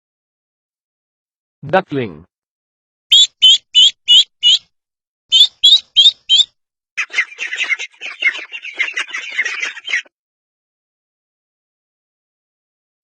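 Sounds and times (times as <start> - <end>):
ducklings peeping: 3.1 - 4.6, 5.3 - 10.1.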